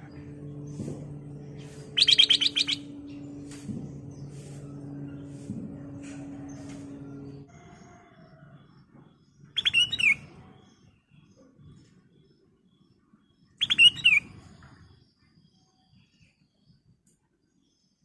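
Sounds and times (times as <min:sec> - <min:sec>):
bird singing whistled notes: 0:01.9 - 0:03.4, 0:09.5 - 0:10.3, 0:13.5 - 0:14.6.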